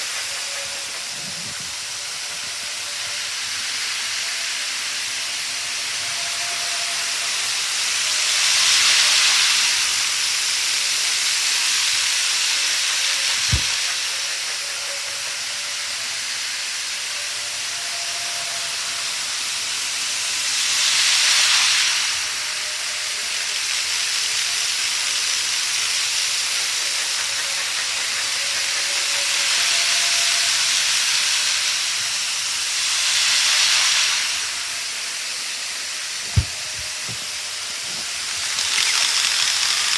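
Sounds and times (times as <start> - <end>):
model train rolling hiss: 0.0 - 39.9.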